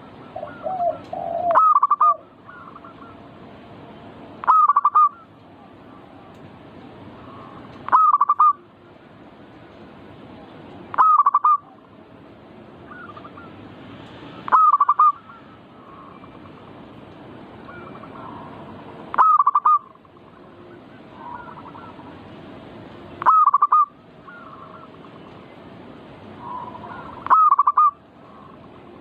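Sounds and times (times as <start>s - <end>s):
faint doves calling: 0.0s - 9.2s, 10.2s - 29.0s
dove rolling coo: 0.2s - 3.2s, 14.5s - 16.4s, 17.7s - 22.2s, 26.4s - 29.0s.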